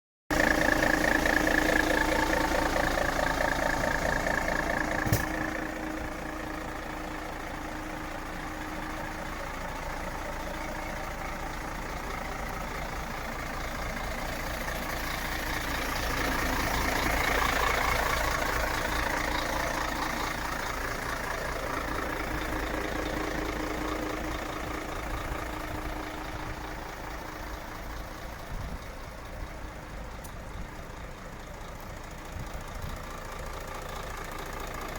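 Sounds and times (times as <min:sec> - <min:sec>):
truck diesel engine idling: 0:00.3 - 0:34.9.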